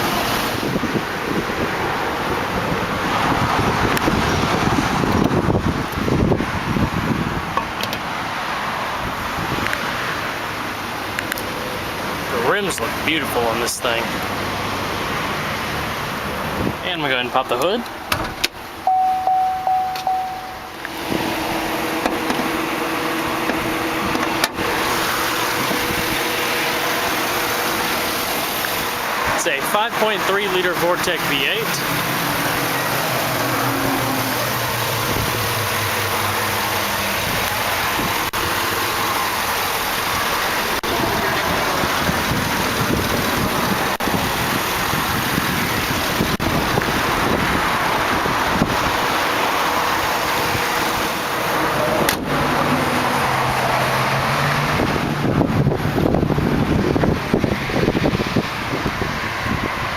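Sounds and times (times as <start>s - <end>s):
car engine idling: 5.0s - 59.9s
vehicle warning chime: 18.8s - 21.0s.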